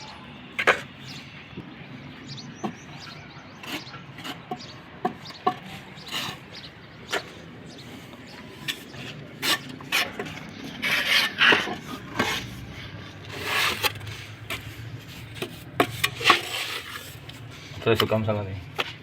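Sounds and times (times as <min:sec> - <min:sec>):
hand tools scraping on tile: 0:08.6 - 0:17.4.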